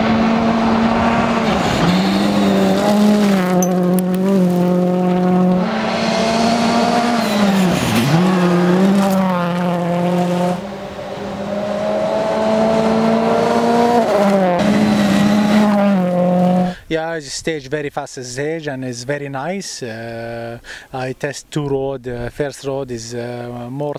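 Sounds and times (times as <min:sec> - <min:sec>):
car engine at high revs: 0:00.0 - 0:16.7.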